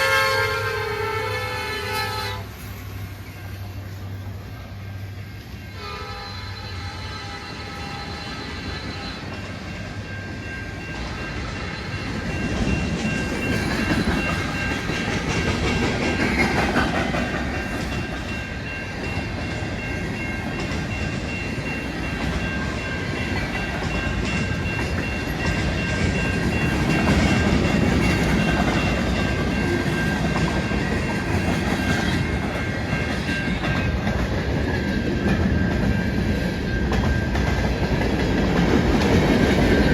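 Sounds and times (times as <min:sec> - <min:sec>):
train horn: 0:00.0 - 0:02.6, 0:05.7 - 0:09.4
steady high tones: 0:07.5 - 0:39.9
train wheels clacking over rail joints: 0:10.8 - 0:39.9.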